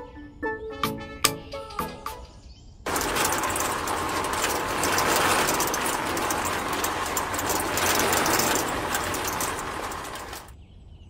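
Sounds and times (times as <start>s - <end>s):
small motor and gears buzzing: 2.9s - 10.5s.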